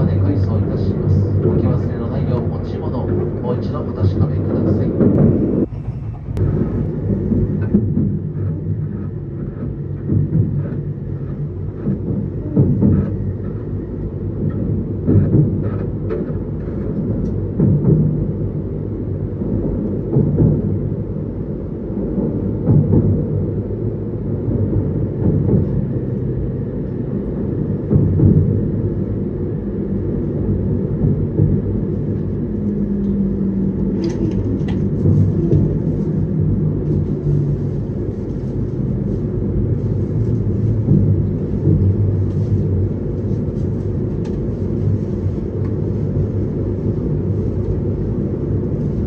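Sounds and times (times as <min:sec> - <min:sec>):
train running gear rumble: 0:00.0 - 0:49.0.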